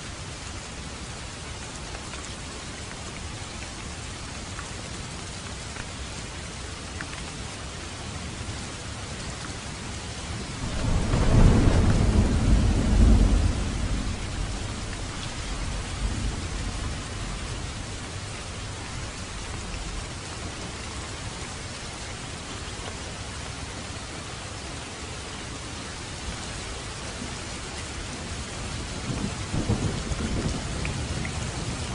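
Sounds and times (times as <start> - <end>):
steady rain falling: 0.0 - 31.9
thunder rumbling: 10.6 - 18.3, 29.0 - 31.9.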